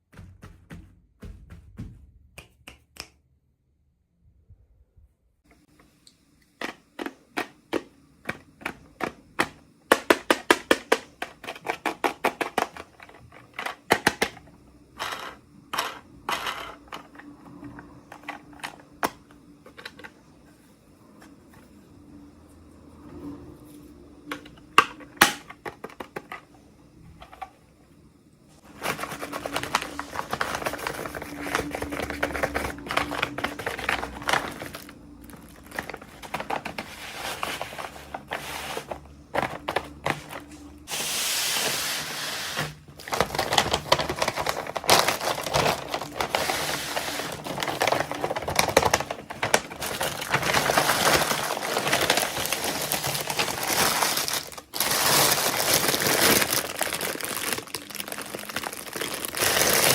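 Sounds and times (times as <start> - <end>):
plastic packaging crinkling and tearing: 28.6 - 59.9.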